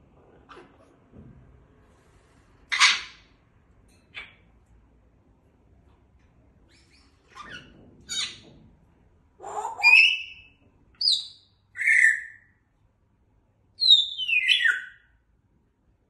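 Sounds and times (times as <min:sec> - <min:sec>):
parrot chirping and whistling: 0:09.7 - 0:12.5, 0:13.8 - 0:15.0.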